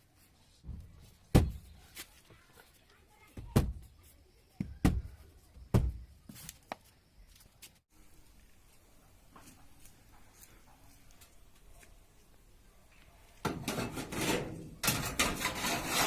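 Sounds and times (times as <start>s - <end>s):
knocks and heavy thuds: 0.6s - 1.7s, 3.4s - 3.9s, 4.6s - 6.2s.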